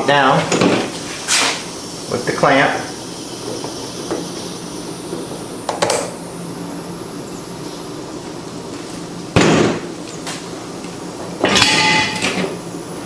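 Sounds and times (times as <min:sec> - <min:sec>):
low background hum: 0:00.0 - 0:13.0
loud sharp metal clunk: 0:09.4 - 0:09.9, 0:11.4 - 0:12.6.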